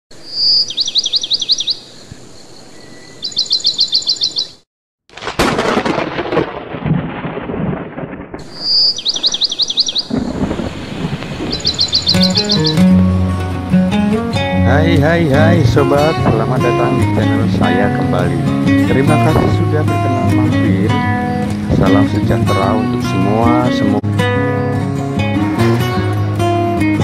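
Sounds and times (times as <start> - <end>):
bird trills: 0.2 - 4.6, 8.5 - 13.0
thunder rumbling: 5.2 - 13.1
steady hiss: 10.4 - 12.6
music: 12.0 - 27.0.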